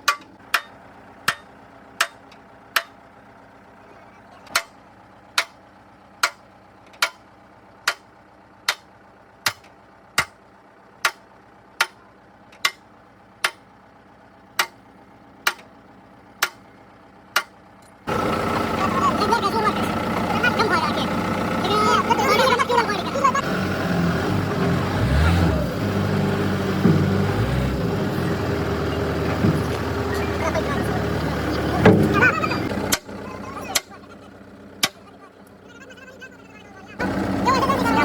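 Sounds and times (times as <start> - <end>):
sharp knocks: 26.6 - 27.4.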